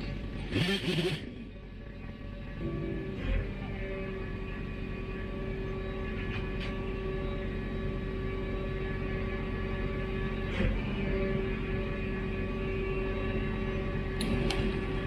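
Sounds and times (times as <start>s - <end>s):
machine engine humming: 0.0s - 15.0s.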